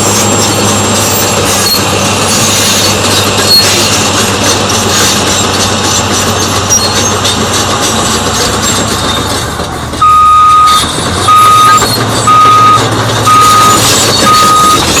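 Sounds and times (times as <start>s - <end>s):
diesel engine running: 0.0s - 15.0s
backup alarm beeping: 10.0s - 15.0s.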